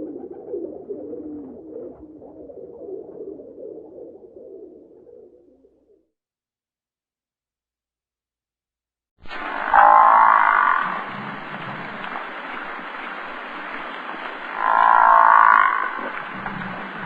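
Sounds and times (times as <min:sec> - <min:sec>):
animal calling: 0:09.6 - 0:11.0, 0:14.5 - 0:16.2.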